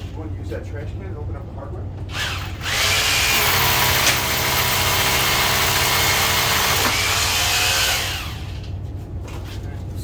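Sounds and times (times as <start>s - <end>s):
electric power tool motor running: 2.1s - 8.6s.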